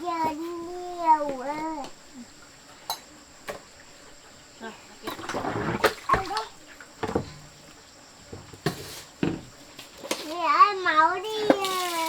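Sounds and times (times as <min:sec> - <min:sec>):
splashing water: 0:04.9 - 0:07.5.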